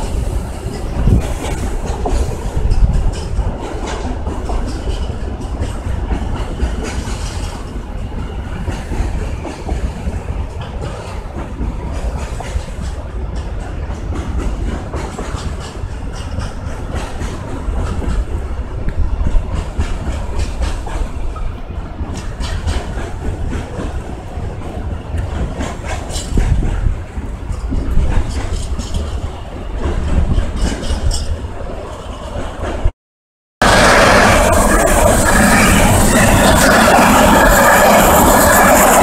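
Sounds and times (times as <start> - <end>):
freight train rolling past: 0.0 - 32.9, 33.6 - 39.0
wheels clacking over rail joints: 0.0 - 32.9.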